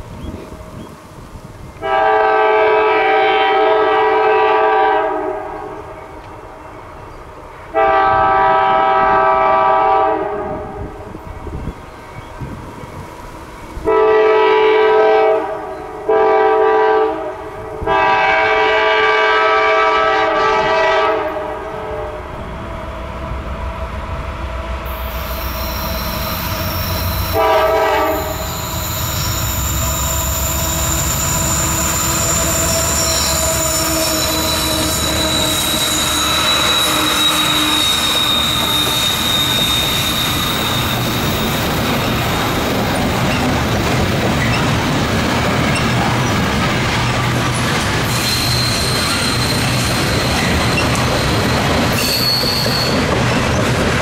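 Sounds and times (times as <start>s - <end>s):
train rumble: 0.0s - 54.0s
locomotive horn blasts: 1.8s - 5.9s, 7.7s - 10.9s, 13.8s - 22.5s, 25.6s - 39.6s
high wheel squeal: 24.9s - 43.5s, 48.0s - 53.4s.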